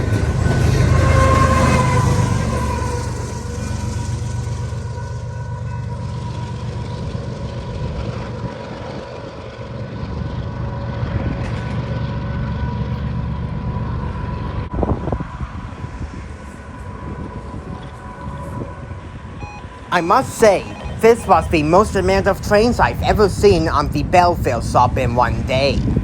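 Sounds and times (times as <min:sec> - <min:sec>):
freight train cars rumbling: 0:00.0 - 0:26.0
high-pitched tone: 0:18.2 - 0:24.1.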